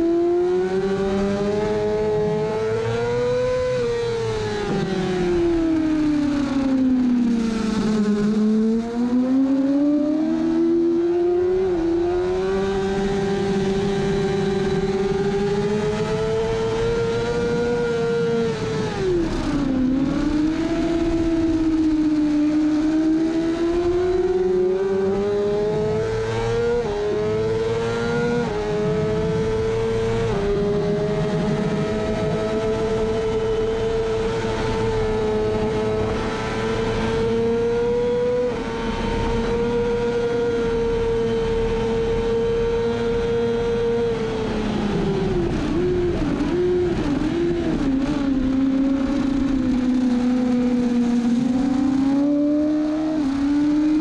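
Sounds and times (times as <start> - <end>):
motorcycle engine revving: 0.0 - 54.0
wind rush on microphone: 0.0 - 54.0.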